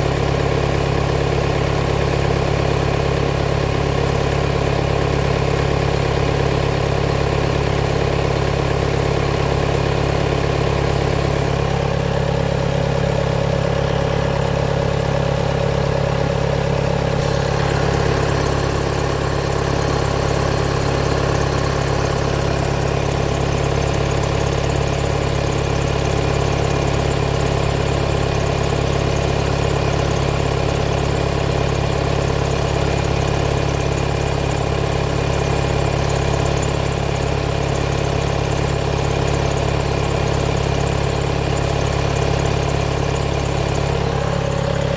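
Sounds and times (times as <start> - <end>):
diesel engine idling: 0.0 - 44.9
mid-pitched hum: 16.7 - 25.2.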